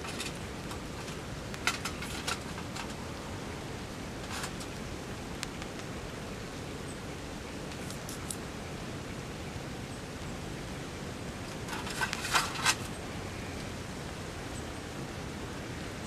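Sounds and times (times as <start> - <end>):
sharp clicks and crackles: 0.0 - 3.0, 4.2 - 5.9.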